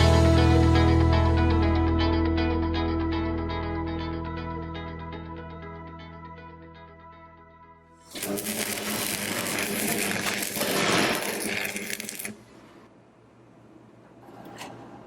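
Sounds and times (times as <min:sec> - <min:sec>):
laser welder crackling sizzle: 0:08.0 - 0:12.8.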